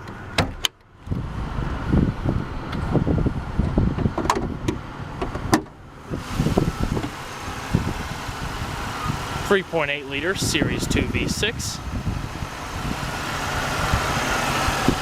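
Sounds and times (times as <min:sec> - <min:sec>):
car hood latch clicks: 0:00.0 - 0:00.8, 0:04.0 - 0:05.8.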